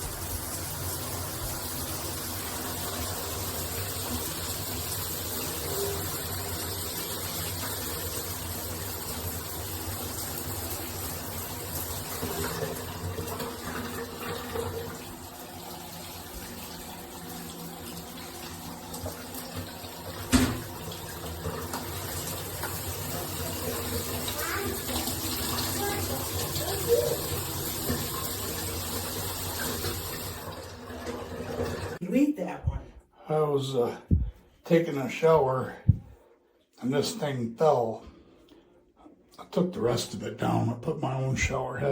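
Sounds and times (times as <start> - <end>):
shower water spraying: 0.0 - 32.0.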